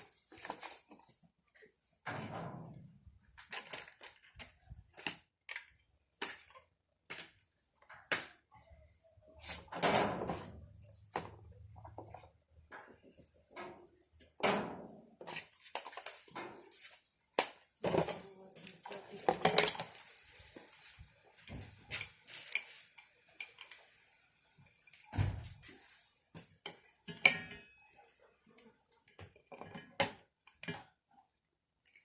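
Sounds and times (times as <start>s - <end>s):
hard objects clinking and knocking: 15.2s - 20.8s.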